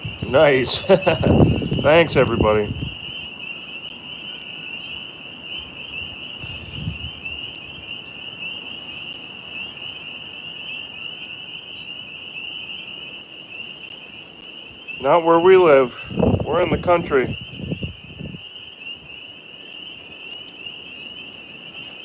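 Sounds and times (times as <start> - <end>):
night insects chirring: 0.0 - 22.0.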